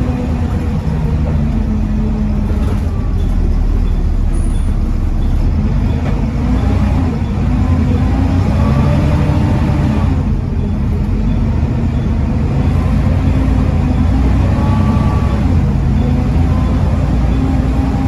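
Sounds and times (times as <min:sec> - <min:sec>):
bus diesel engine rumbling: 0:00.0 - 0:18.0.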